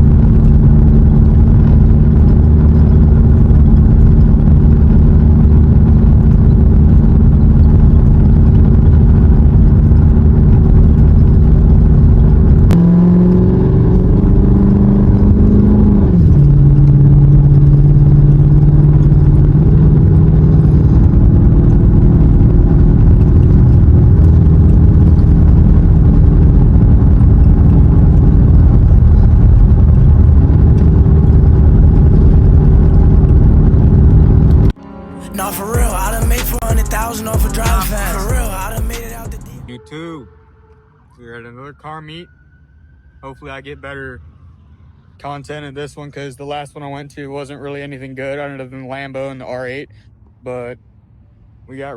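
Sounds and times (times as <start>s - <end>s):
car engine running: 0.0s - 34.7s, 35.4s - 39.7s.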